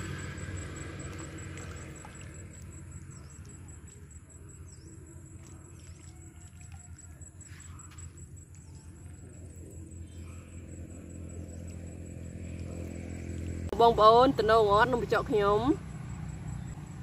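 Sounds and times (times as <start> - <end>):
bird chirping: 2.3 - 13.1
steady low rumble: 7.7 - 17.0.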